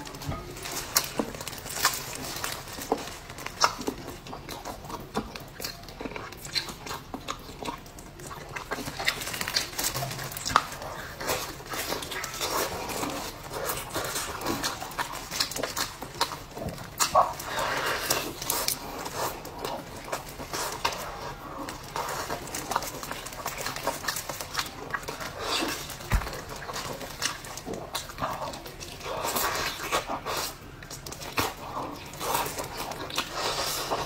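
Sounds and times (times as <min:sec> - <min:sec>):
chewing and lip-smacking: 0:00.0 - 0:34.0.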